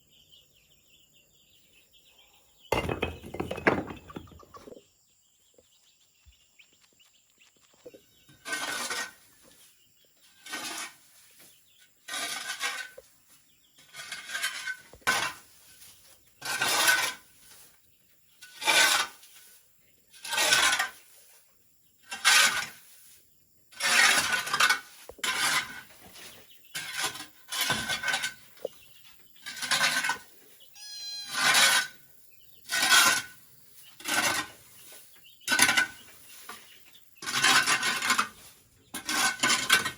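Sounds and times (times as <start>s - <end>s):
hand tool rasping bamboo: 12.1s - 13.0s, 16.4s - 17.2s, 18.4s - 19.3s, 20.2s - 21.0s, 22.1s - 22.9s, 23.8s - 26.0s, 34.0s - 34.6s, 37.2s - 39.9s.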